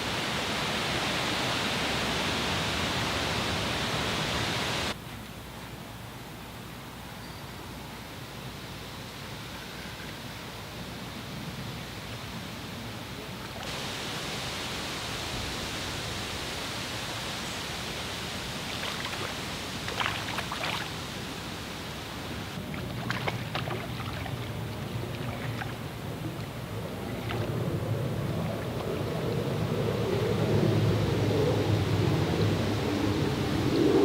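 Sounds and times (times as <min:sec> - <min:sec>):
wind on microphone: 0:22.4 - 0:34.0.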